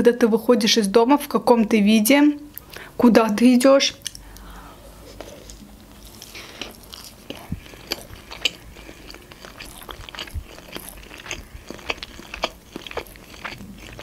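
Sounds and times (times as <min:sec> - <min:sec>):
person chewing food: 0:05.0 - 0:14.0.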